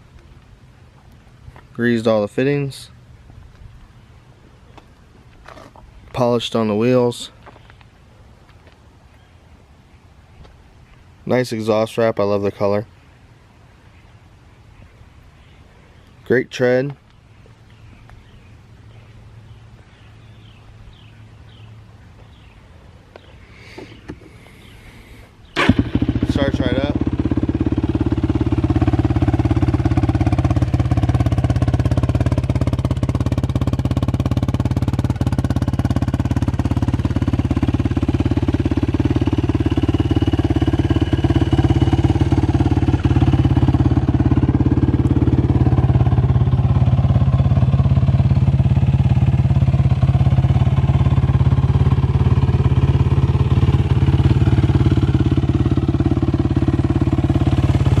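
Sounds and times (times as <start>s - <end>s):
four-stroke engine running: 25.6s - 58.0s.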